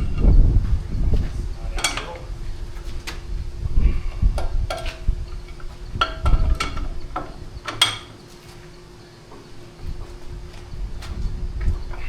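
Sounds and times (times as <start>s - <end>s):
steel tools clanking on metal: 1.7s - 3.2s, 4.4s - 8.4s
dull thuds: 2.7s - 12.0s.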